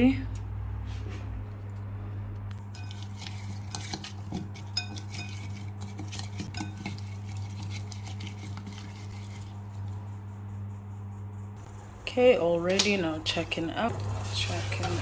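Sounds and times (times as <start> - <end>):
steady low hum: 0.0 - 15.0
kitchenware clinking: 2.6 - 9.9.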